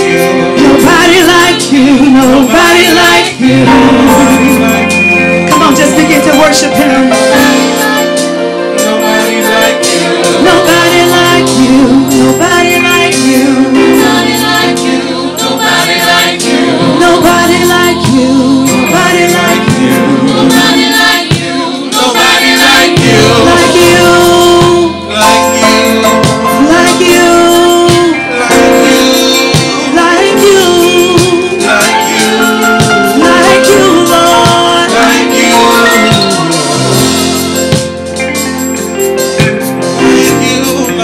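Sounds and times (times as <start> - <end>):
choir singing: 0.0 - 6.4, 7.0 - 38.0
band with steady percussion: 0.0 - 41.0.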